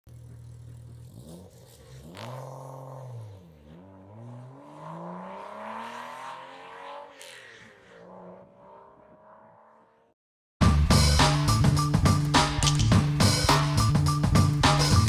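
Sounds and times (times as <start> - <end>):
car engine accelerating: 0.1 - 10.1.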